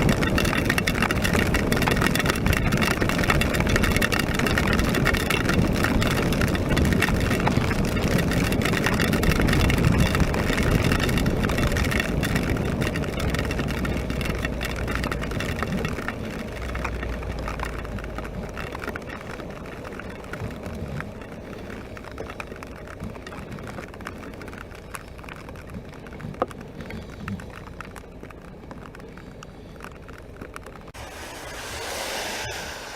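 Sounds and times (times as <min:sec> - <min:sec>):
motorcycle engine: 0:00.0 - 0:32.9
wet road noise: 0:00.0 - 0:32.9
wind rushing: 0:30.9 - 0:32.9.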